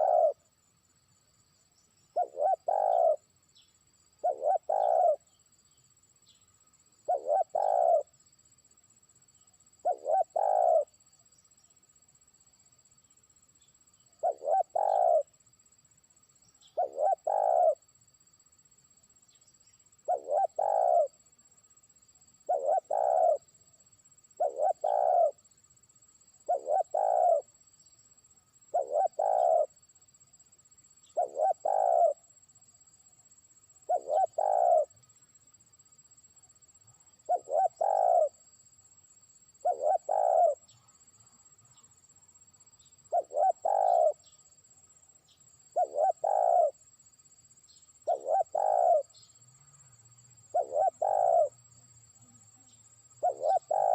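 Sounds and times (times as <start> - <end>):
dove cooing: 0.0 - 0.4, 2.1 - 3.2, 4.2 - 5.3, 7.0 - 8.1, 9.8 - 10.9, 14.2 - 15.3, 16.7 - 17.8, 20.0 - 21.1, 22.4 - 23.4, 24.4 - 25.4, 26.5 - 27.5, 28.7 - 29.7, 31.2 - 32.2, 33.8 - 34.9, 37.3 - 38.4, 39.6 - 40.7, 43.1 - 44.3, 45.8 - 46.8, 48.1 - 49.1, 50.5 - 51.6, 53.2 - 53.9.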